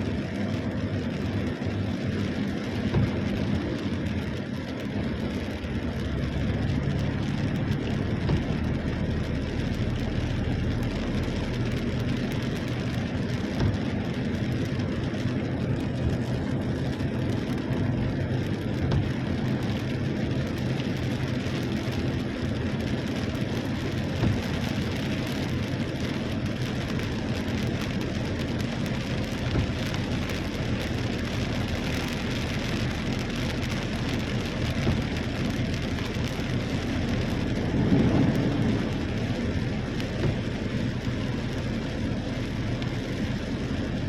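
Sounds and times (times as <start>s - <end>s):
low rumble: 0.0s - 44.0s
heavy rain hissing: 23.0s - 44.0s.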